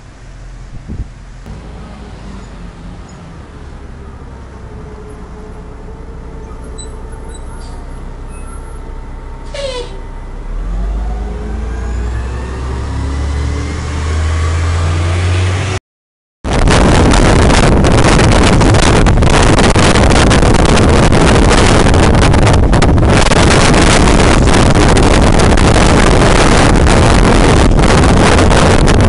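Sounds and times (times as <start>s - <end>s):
low rumble: 0.0s - 15.1s, 16.5s - 29.0s
wind buffeting microphone: 0.7s - 8.8s, 16.5s - 29.0s.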